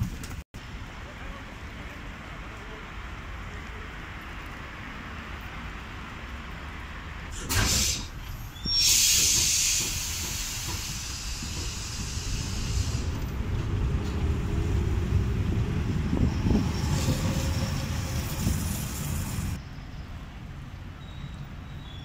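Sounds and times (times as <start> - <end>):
electric train rumbling over track: 0.0 - 22.0
loud hiss: 7.3 - 13.3.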